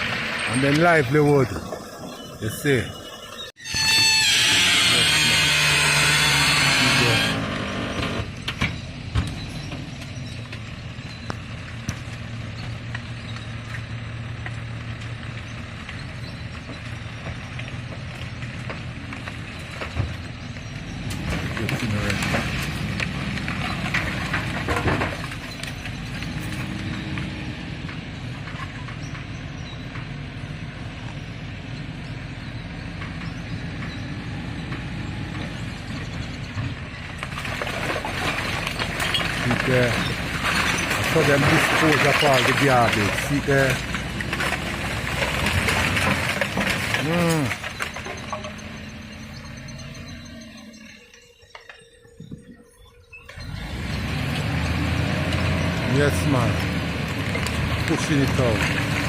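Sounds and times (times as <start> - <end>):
garbage truck engine running: 0.0 - 52.5, 53.2 - 59.0
knocks and clatter: 7.8 - 30.2, 34.7 - 50.8.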